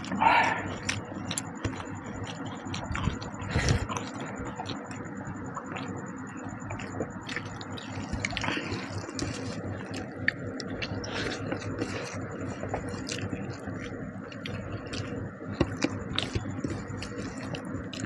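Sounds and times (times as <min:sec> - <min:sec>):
person eating and chewing: 0:00.0 - 0:18.0.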